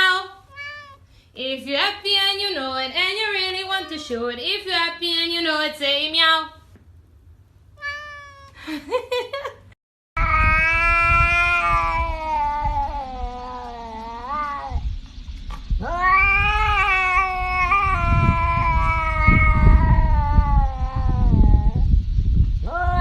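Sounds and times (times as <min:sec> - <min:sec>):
cat yowling: 0:00.5 - 0:01.1, 0:03.4 - 0:04.2, 0:07.8 - 0:08.6, 0:10.2 - 0:14.8, 0:15.8 - 0:21.9, 0:22.7 - 0:23.0.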